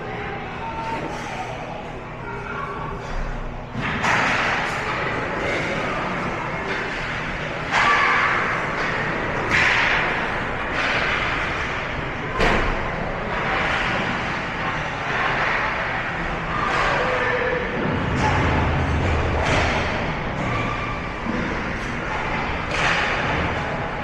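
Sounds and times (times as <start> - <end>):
steady background noise: 0.0 - 24.0.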